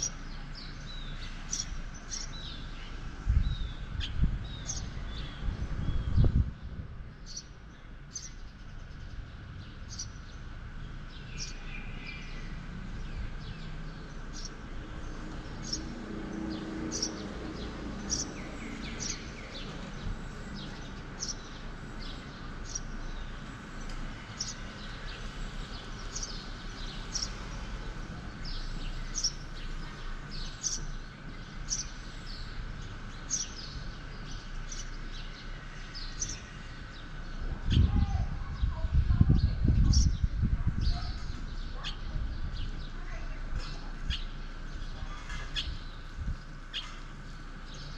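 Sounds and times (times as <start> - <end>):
small bird chirping: 0.0 - 6.4, 7.2 - 12.6, 18.0 - 19.8
low town ambience hum: 0.0 - 47.9.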